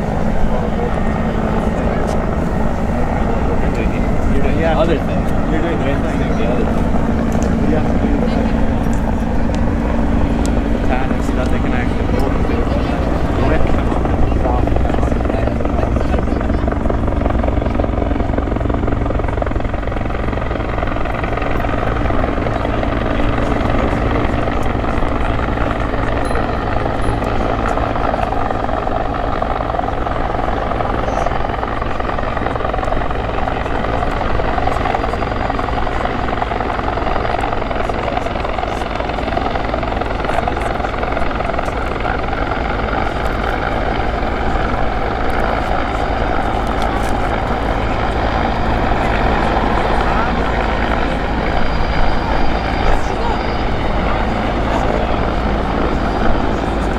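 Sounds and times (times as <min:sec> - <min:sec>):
helicopter engines rushing: 0:00.0 - 0:56.9
helicopter rotor beating: 0:00.0 - 0:56.9.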